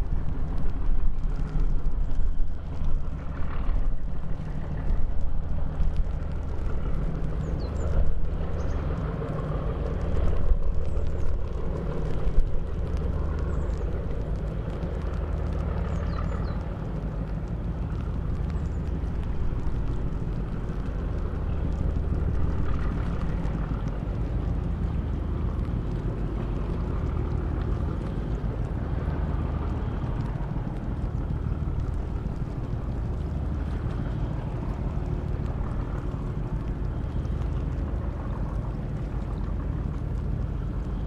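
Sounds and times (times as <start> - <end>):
boat diesel engine droning: 2.4 - 41.0.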